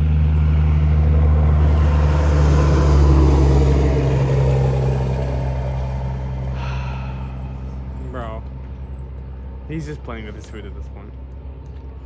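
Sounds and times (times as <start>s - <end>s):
vehicle passing by: 0.0s - 10.3s.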